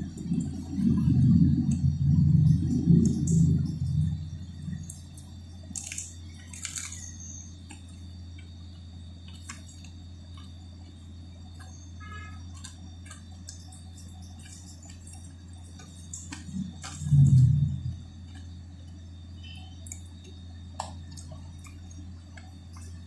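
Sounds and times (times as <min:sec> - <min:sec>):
low hum: 0:00.0 - 0:23.0
mouth clicks and smacks chewing: 0:12.5 - 0:17.5, 0:19.8 - 0:23.0.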